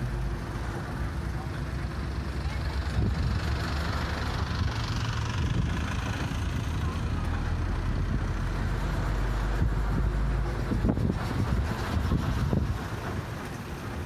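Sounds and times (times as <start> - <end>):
bus engine drone: 0.0 - 14.0
road noise: 0.0 - 14.0.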